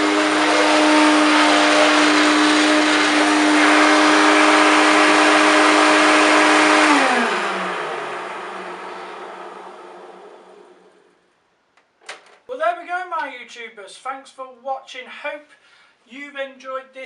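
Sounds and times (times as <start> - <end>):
vacuum cleaner motor whine: 0.0 - 11.2.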